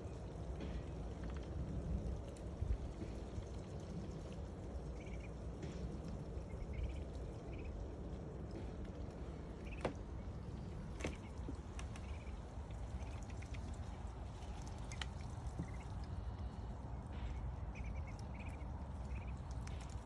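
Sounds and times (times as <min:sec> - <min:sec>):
rain dripping and pattering: 0:00.0 - 0:20.0
ducklings peeping: 0:03.0 - 0:20.0.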